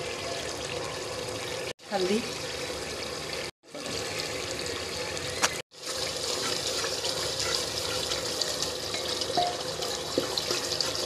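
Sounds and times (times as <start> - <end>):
meat sizzling in oil: 3.7 - 11.0.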